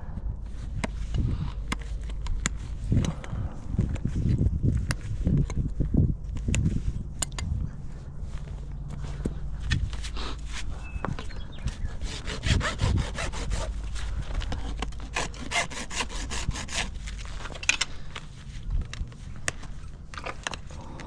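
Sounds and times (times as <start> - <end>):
rasp scraping a hoof: 11.6 - 17.6.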